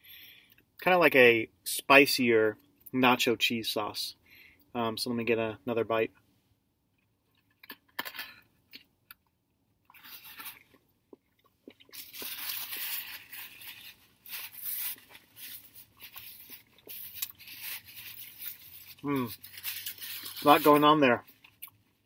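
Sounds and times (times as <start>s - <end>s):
close-up chewing: 8.7s - 20.4s.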